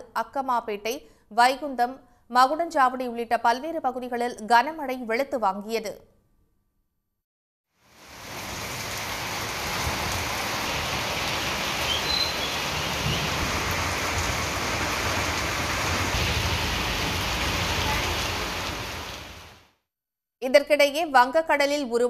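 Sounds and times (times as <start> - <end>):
heavy rain on a paved road: 7.8 - 19.7.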